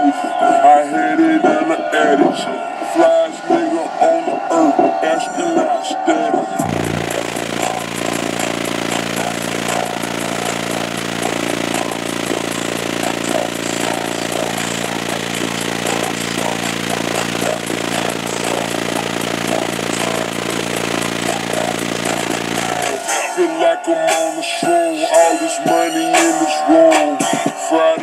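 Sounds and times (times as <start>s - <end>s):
loud low bass tone: 6.6s - 23.0s.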